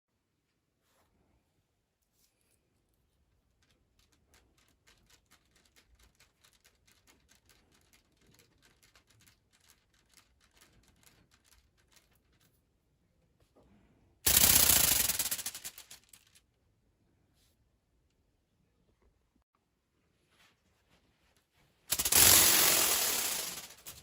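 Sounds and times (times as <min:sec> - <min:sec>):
faint rapid clicking: 0:03.2 - 0:12.6, 0:14.3 - 0:16.4
toy ornithopter wings flapping: 0:03.4 - 0:12.6, 0:14.3 - 0:16.4, 0:21.9 - 0:24.0.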